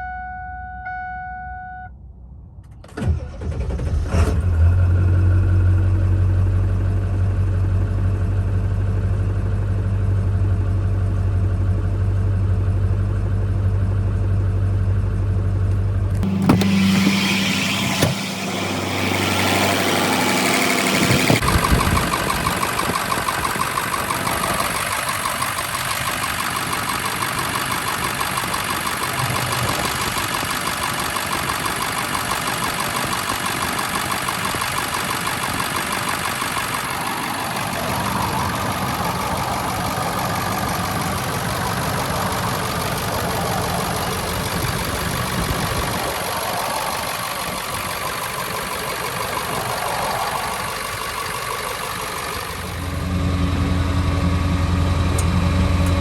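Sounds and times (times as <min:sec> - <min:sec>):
diesel engine idling: 0:03.1 - 0:56.0.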